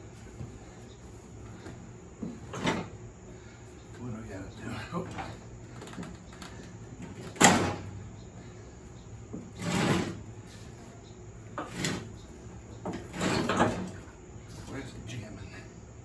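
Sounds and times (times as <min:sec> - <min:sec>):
mower deck scraping and clunking: 0:01.4 - 0:03.0, 0:04.6 - 0:08.1, 0:09.2 - 0:15.0.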